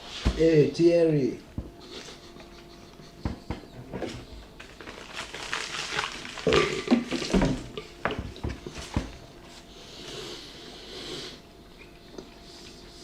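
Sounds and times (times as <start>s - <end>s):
crinkling: 4.4s - 9.6s
sandwich being chewed: 4.6s - 7.0s
crunching: 4.6s - 7.8s.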